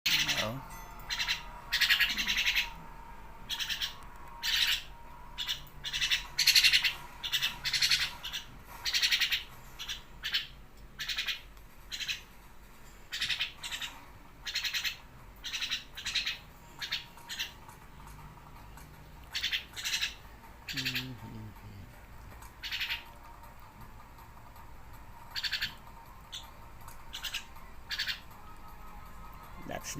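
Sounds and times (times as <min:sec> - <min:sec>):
myna squawking: 0:00.1 - 0:02.8, 0:19.3 - 0:21.3.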